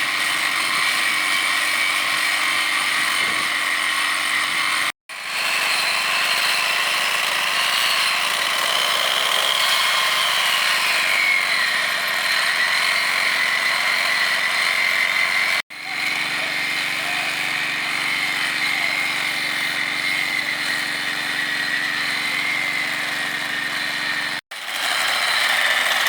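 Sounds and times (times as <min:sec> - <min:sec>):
rail grinder grinding: 0:00.0 - 0:26.0.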